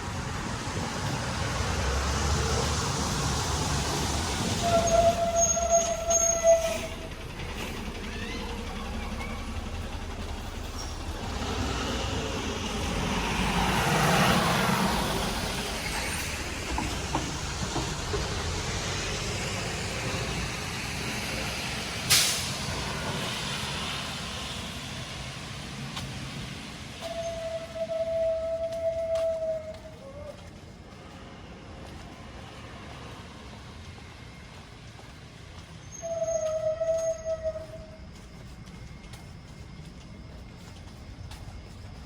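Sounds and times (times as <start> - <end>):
vehicle passing on wet street: 0.0 - 5.2, 6.9 - 27.8
steady rain: 8.5 - 27.1
short sharp hiss: 22.1 - 22.7.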